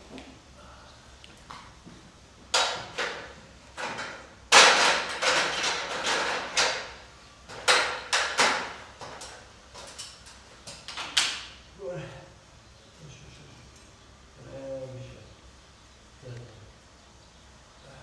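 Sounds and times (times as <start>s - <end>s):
knocks and bangs of work: 2.6s - 10.0s.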